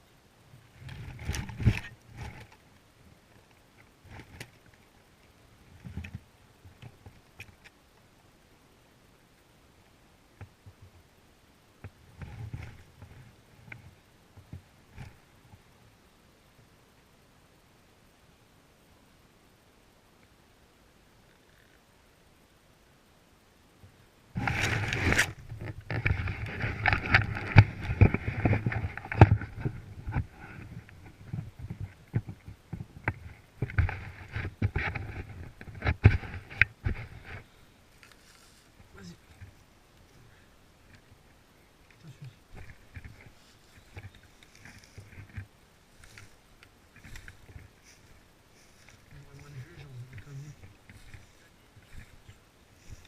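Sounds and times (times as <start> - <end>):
rustling and knocks of gear: 0.7 - 2.6, 24.4 - 39.7, 41.9 - 53.0.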